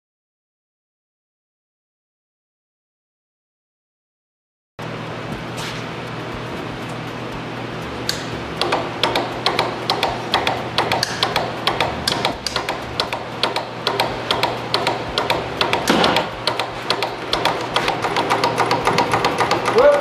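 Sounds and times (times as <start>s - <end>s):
steady low motor hum: 4.8s - 20.0s
engine mechanism clicking rapidly: 6.4s - 20.0s.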